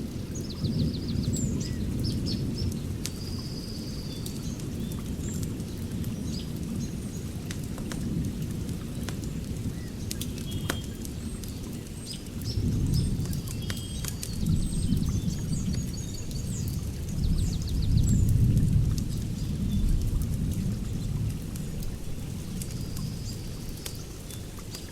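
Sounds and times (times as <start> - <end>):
fire crackling and popping: 1.4 - 24.9
birds chirping: 9.8 - 18.4.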